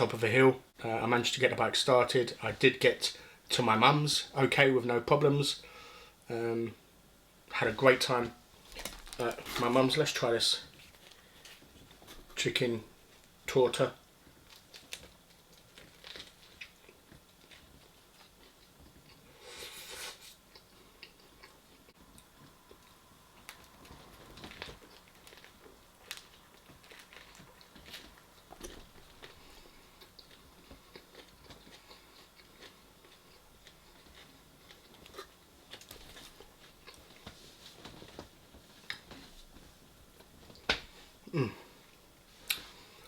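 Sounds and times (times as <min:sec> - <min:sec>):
chewing bread: 0:14.2 - 0:39.6.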